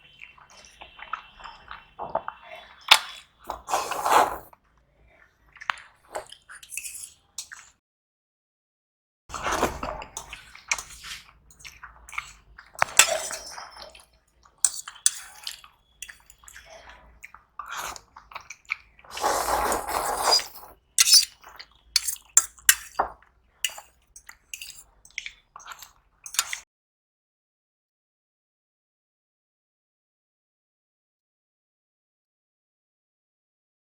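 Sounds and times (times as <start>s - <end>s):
cutlery clinking on dishes: 9.4s - 13.9s, 14.6s - 16.6s, 20.2s - 21.4s, 22.0s - 25.2s, 26.2s - 26.6s.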